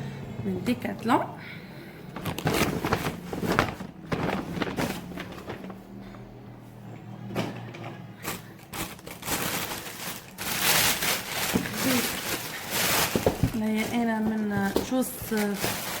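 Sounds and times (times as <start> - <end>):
packaging rustling and knocks: 2.1 - 6.0, 7.4 - 16.0.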